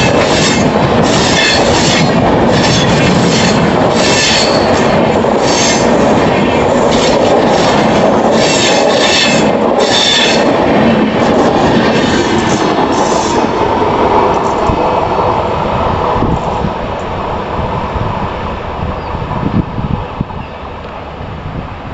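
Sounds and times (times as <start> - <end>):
train wheel squeal: 0.0 - 6.0, 6.9 - 10.5, 12.0 - 13.5, 19.0 - 20.8
train wheels clattering: 0.0 - 17.1.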